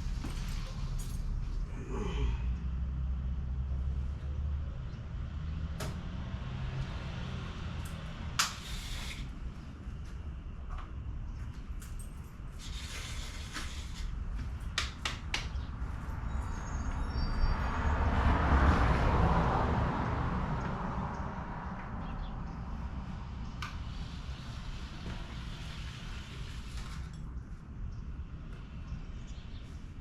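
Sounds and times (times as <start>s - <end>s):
vehicle passing by: 2.4s - 8.8s, 15.8s - 26.7s.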